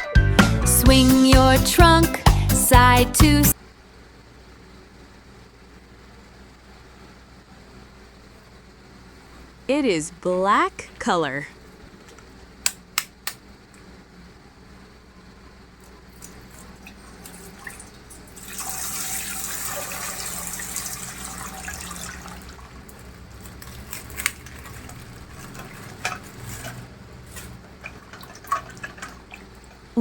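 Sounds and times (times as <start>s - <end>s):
water gushing from plastic pack: 17.3s - 29.5s
plastic clicks and crinkles: 23.4s - 27.5s.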